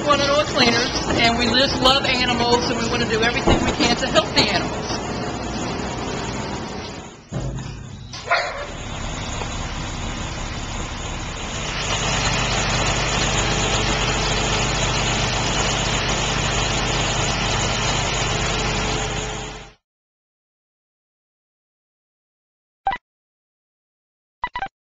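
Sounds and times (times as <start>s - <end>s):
engine humming: 0.0s - 19.8s.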